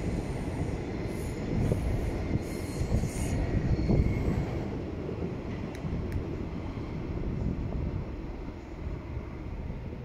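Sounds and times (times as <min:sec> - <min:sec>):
train wheels rumbling on rails: 0:00.0 - 0:10.0
high wheel squeal: 0:00.2 - 0:04.6.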